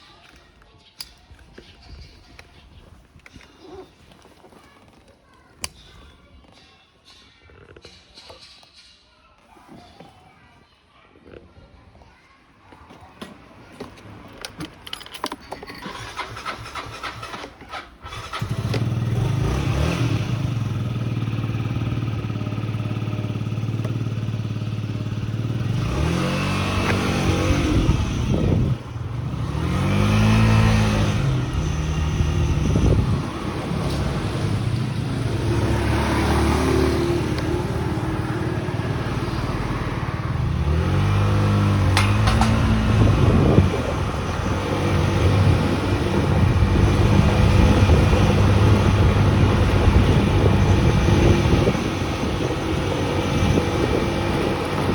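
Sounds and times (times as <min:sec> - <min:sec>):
motorcycle engine revving: 0:15.8 - 0:54.9.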